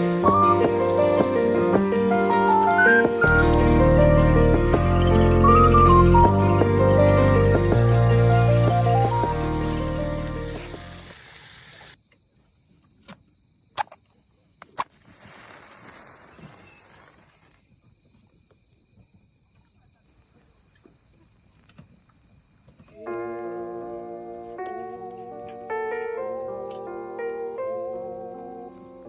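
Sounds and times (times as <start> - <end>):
sharp snaps: 0.0 - 6.3
background music: 0.0 - 11.1
high insect trill: 0.0 - 18.7
short hiss: 4.6 - 12.0.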